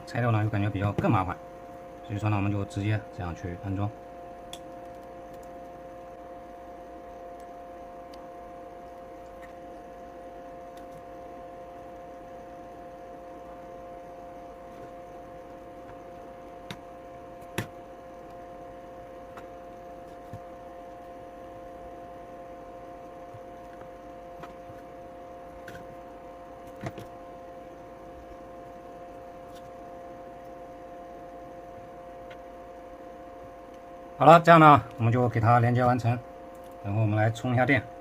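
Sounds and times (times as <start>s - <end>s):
electrical hum: 0.0s - 38.0s.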